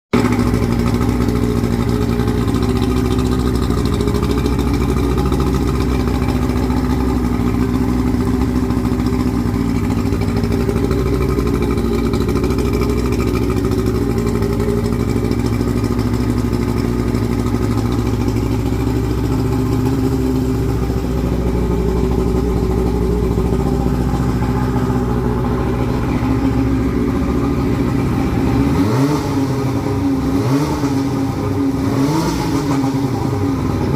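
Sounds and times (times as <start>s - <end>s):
outboard motor running: 0.2s - 33.9s.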